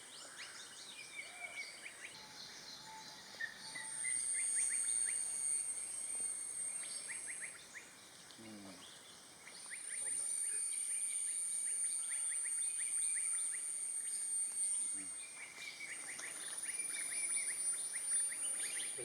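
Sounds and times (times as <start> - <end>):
insect high drone: 0.0 - 19.0
birds chirping: 6.7 - 19.0.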